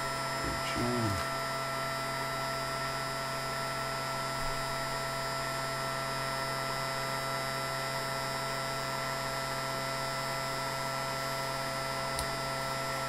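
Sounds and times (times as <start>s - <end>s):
electrical hum: 0.0s - 1.9s.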